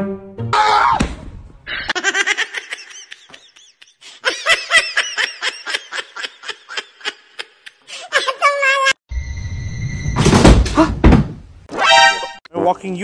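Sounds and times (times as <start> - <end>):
person laughing hard: 1.7 - 8.4.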